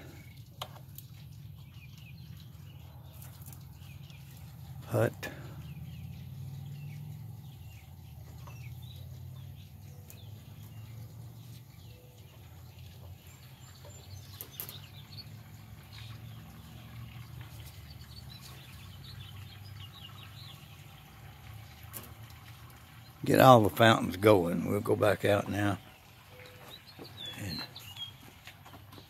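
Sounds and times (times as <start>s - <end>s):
birds chirping faintly: 0.0s - 29.0s.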